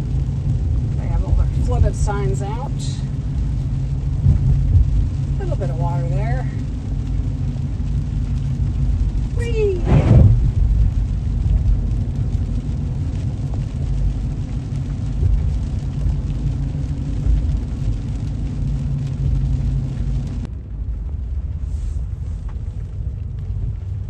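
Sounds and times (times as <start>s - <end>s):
engine and tyres rumbling: 0.0s - 24.0s
tyre hiss on wet road: 21.4s - 22.9s.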